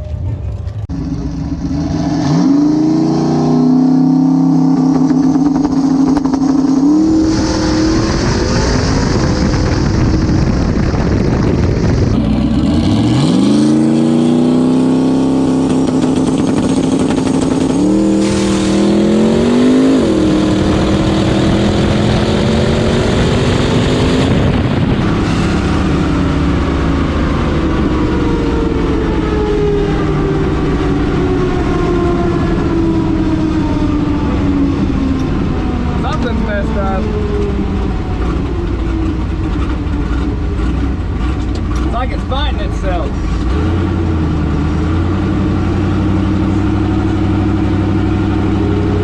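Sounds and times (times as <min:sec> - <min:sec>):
race truck engine at full throttle: 0:00.0 - 0:49.0.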